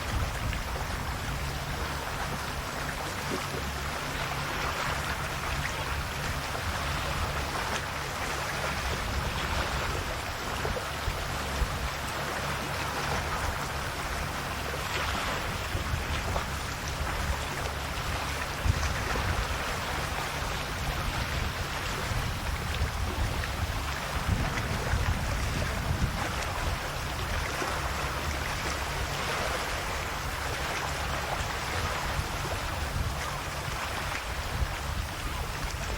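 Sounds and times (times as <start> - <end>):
low steady rumble: 0.0 - 35.9
sea waves lapping on shore: 0.0 - 35.9.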